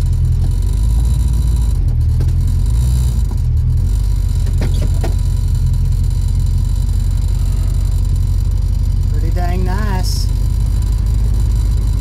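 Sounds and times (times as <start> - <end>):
car engine low drone: 0.0 - 12.0.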